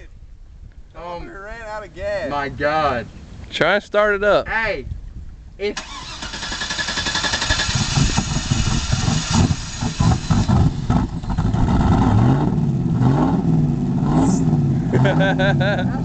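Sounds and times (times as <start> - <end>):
truck engine starting and revving: 5.8 - 15.9.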